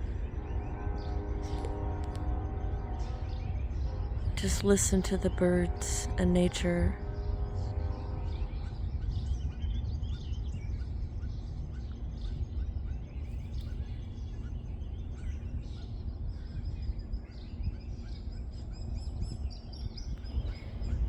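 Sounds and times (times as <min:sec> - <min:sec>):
songbirds chirping and singing: 0:00.0 - 0:21.0
low rumble: 0:07.0 - 0:21.0.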